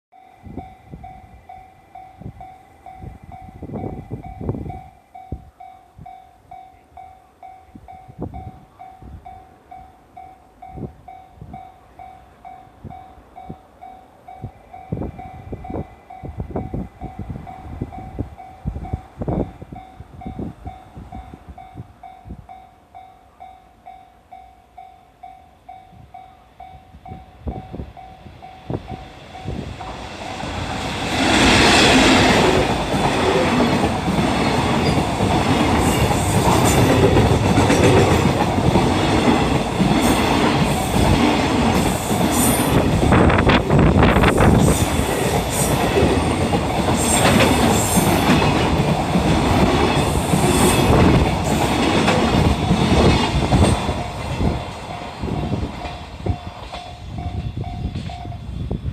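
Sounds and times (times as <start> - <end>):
locomotive rushing past: 27.6 - 58.5
train wheels clickety-clack: 28.7 - 58.4.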